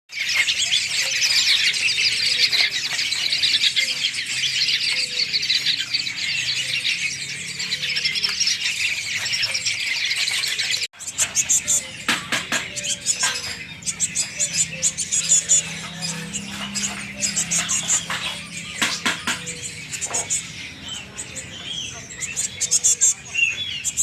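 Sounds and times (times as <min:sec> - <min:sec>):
bird chicks squealing: 0:00.1 - 0:24.0.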